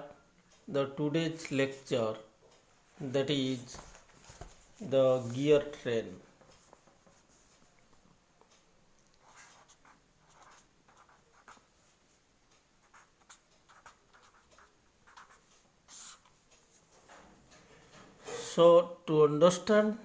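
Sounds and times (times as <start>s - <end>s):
pen scratching handwriting: 9.2s - 11.7s, 12.8s - 16.4s.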